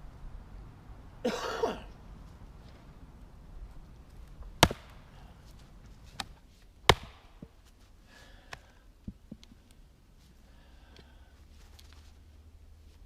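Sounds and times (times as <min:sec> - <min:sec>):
axe striking log: 0:04.6 - 0:05.1, 0:06.9 - 0:07.6.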